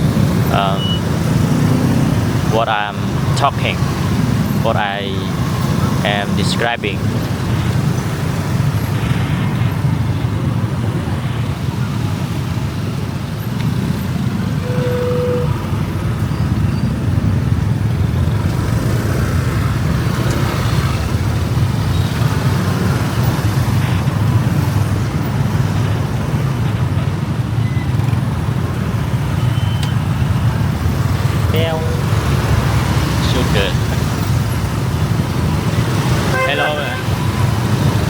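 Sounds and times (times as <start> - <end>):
traffic rumble: 0.0 - 38.0
car horn tone: 14.6 - 15.9, 31.6 - 32.3, 36.1 - 37.4.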